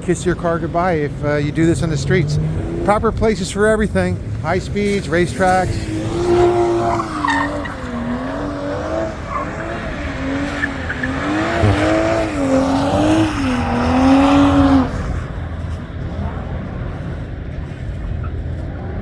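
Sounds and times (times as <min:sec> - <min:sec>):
drift car engine revving: 0:00.0 - 0:19.0
tyre squeal and skidding: 0:04.3 - 0:19.0.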